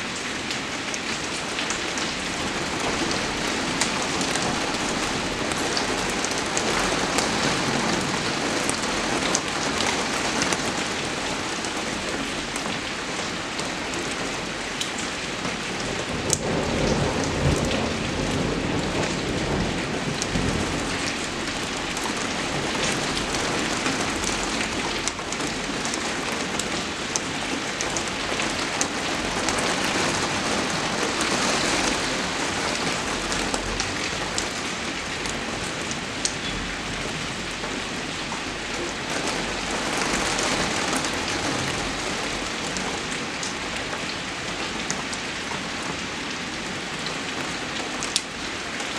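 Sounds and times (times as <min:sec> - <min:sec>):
steady rain falling: 0:00.0 - 0:48.9
raindrop ticks: 0:16.3 - 0:16.6.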